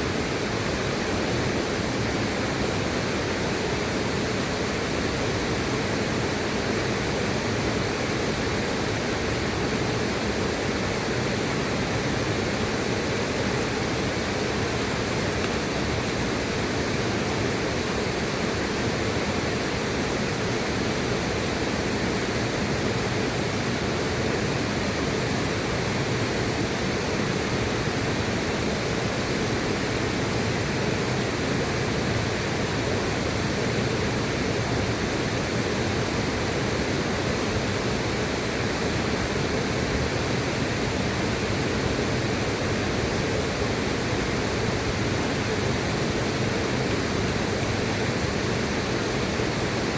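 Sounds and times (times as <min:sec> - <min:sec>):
river water rushing: 0:07.6 - 0:29.0.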